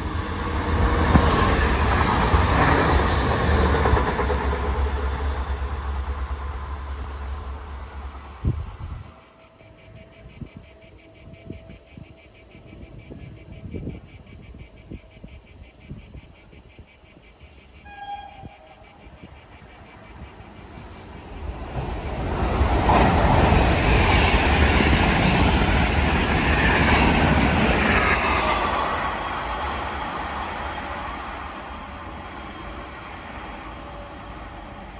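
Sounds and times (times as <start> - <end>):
train rail and wheel noise: 0.0 - 16.8, 17.4 - 34.9
distant horn tone: 17.8 - 18.8.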